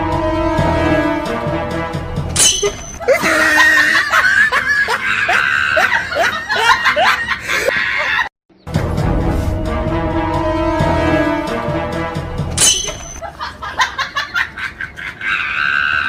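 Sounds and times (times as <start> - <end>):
music: 0.0 - 4.5, 8.6 - 13.2
person giggling: 3.0 - 8.3.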